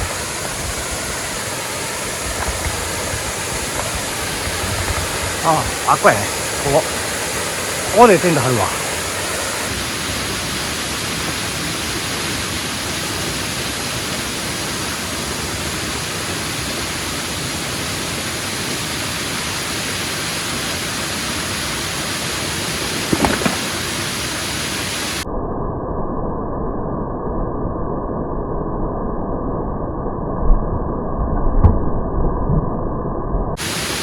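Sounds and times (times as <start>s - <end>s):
waterfall rushing: 0.0s - 25.2s, 33.6s - 34.0s.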